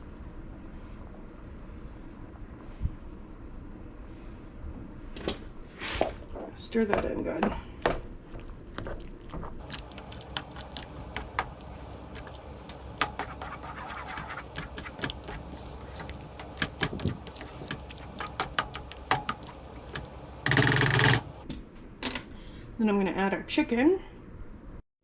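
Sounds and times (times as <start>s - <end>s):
spoon stirring soup in a pot: 9.6s - 21.4s
low steady hum: 9.6s - 21.6s.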